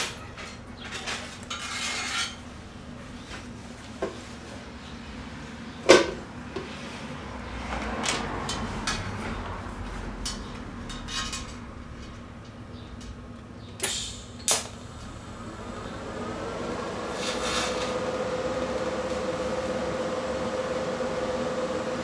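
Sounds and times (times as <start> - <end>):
sharp cracks: 13.8 - 14.8
welder humming: 13.8 - 22.0.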